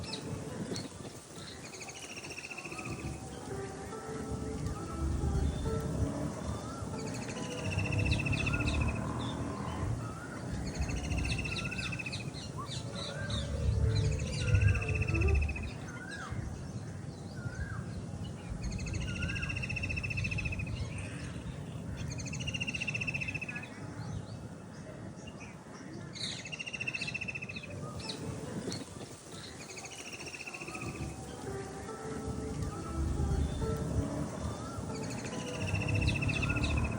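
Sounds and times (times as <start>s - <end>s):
bird trilling: 0.0s - 16.4s, 26.5s - 36.9s
steady low rumble: 2.9s - 22.3s, 31.0s - 36.9s.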